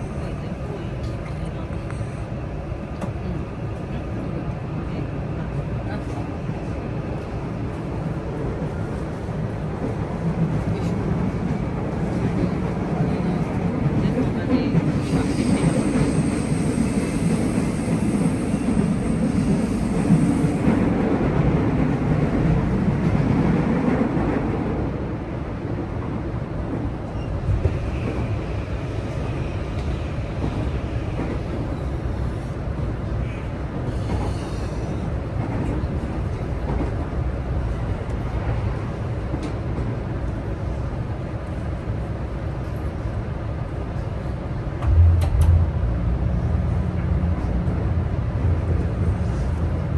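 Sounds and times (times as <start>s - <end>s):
electric train rumble inside car: 26.2s - 49.9s.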